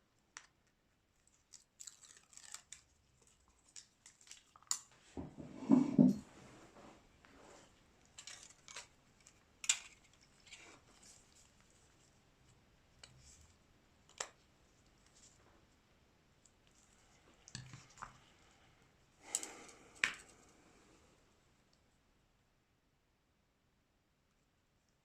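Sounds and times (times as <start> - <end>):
small clicks of tools and phone parts: 8.2 - 10.1.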